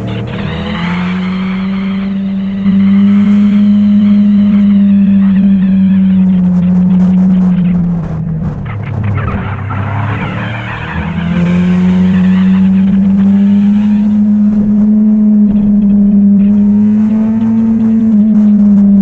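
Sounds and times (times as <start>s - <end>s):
motorcycle engine running: 0.0s - 19.0s
rush of noise: 0.0s - 19.0s.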